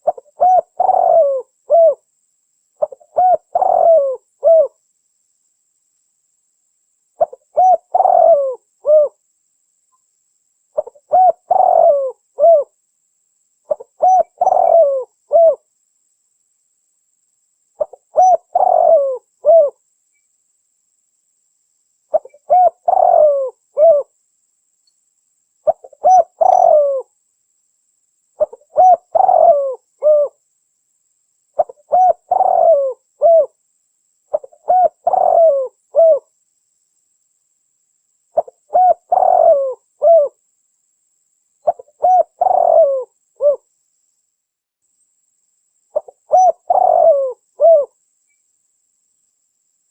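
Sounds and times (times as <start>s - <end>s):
dove cooing: 0.0s - 2.0s, 2.8s - 4.8s, 7.2s - 9.2s, 10.8s - 12.7s, 13.7s - 15.6s, 17.8s - 19.8s, 22.1s - 24.1s, 25.6s - 27.1s, 28.4s - 30.4s, 31.6s - 33.6s, 34.3s - 36.3s, 38.4s - 40.4s, 41.6s - 43.6s, 46.0s - 48.0s.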